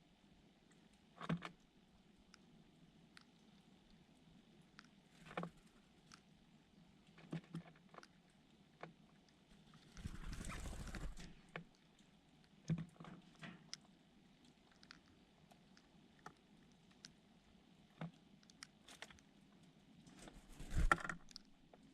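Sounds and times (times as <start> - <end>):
fluttering wings: 9.9 - 11.4, 20.2 - 21.4.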